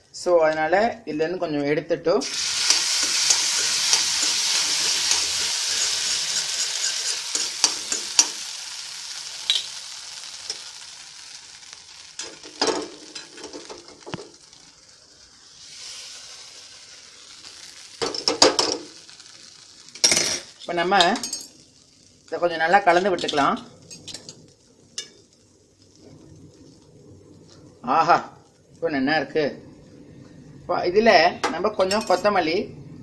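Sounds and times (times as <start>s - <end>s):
food sizzling in a pan: 2.2s - 32.6s
spoon knocking and scraping pan: 2.6s - 8.4s, 12.2s - 14.4s.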